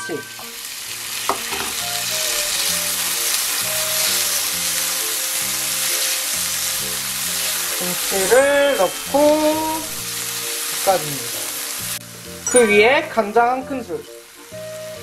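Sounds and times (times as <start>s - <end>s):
background music: 0.0s - 15.0s
vegetables sizzling in hot oil: 0.0s - 15.0s
spatula stirring in pan: 1.3s - 9.6s.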